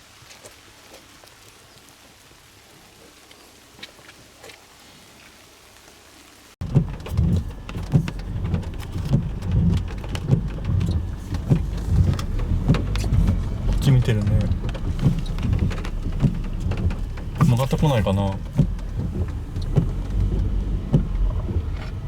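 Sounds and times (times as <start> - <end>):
heavy rain pattering: 5.3 - 22.0.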